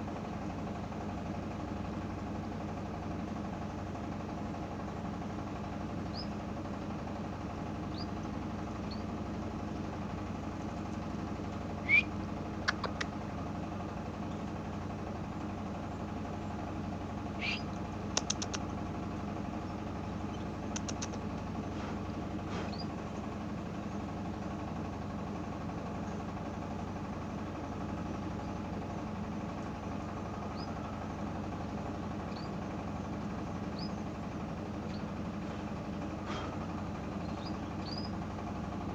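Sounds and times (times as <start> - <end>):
steady mechanical hum: 0.0 - 38.9
canaries chirping: 7.9 - 8.1, 17.4 - 17.7, 33.7 - 34.0, 37.2 - 38.1
quick clicks: 12.6 - 13.1, 18.1 - 18.7, 20.7 - 21.2.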